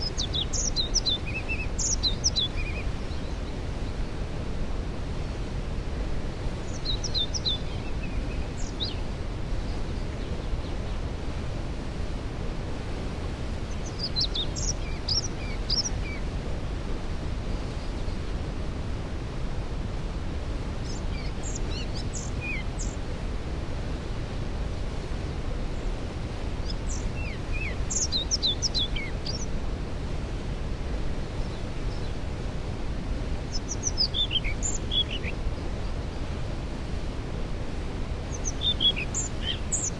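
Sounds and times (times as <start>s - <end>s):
songbird singing: 0.0s - 4.1s, 6.4s - 11.1s, 13.5s - 16.3s, 20.7s - 23.0s, 25.0s - 29.6s, 31.3s - 36.6s, 37.7s - 39.9s
waterfall rushing: 18.9s - 39.9s.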